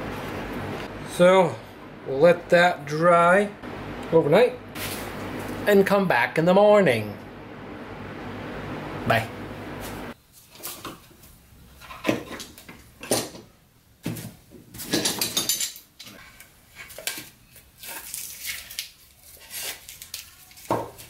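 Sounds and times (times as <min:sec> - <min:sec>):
hard objects knocking and clattering: 0:11.8 - 0:16.2.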